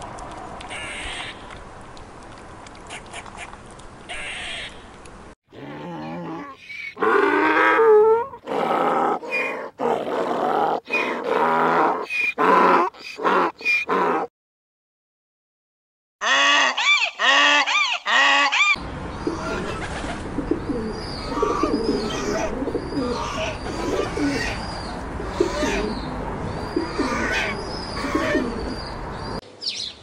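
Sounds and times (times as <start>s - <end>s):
donkey braying: 20.5s - 29.0s.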